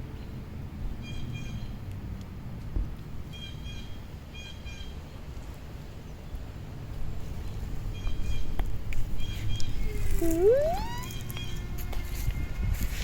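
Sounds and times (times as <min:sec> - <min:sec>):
wind rumbling on microphone: 0:05.1 - 0:13.0.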